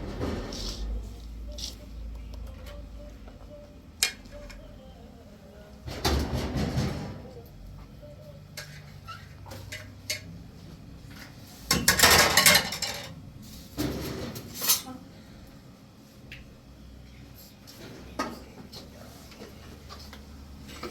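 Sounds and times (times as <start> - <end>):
household objects clattering: 11.2 - 14.9.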